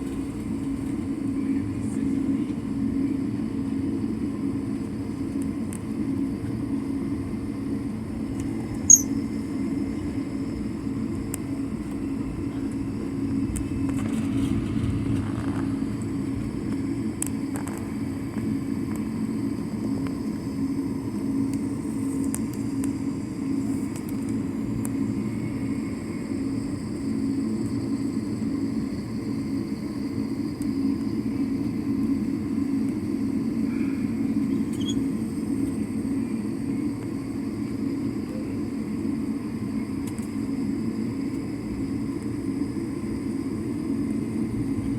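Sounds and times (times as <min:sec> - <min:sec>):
airliner cabin engine drone: 0:00.0 - 0:44.9.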